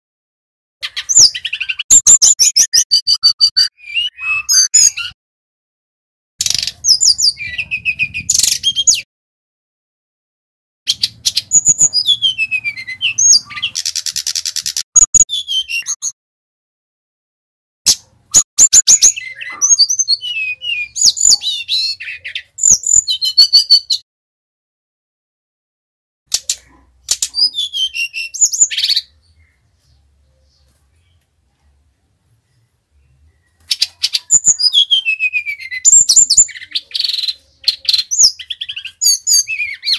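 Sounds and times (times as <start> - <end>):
bird chattering notes: 0.8 - 5.1, 10.9 - 16.1
bird singing high whistles: 1.1 - 5.2, 10.9 - 16.1, 18.3 - 24.0, 27.3 - 29.1, 33.7 - 39.9.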